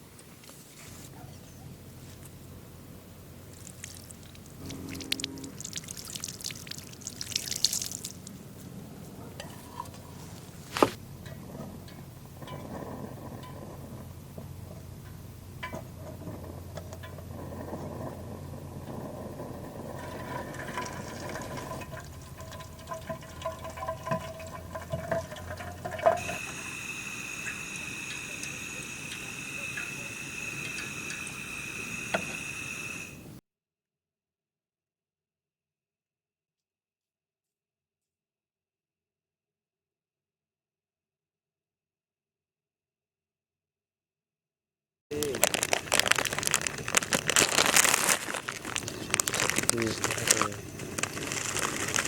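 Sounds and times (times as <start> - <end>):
liquid being poured: 3.5 - 8.4, 19.8 - 33.1, 45.1 - 52.0.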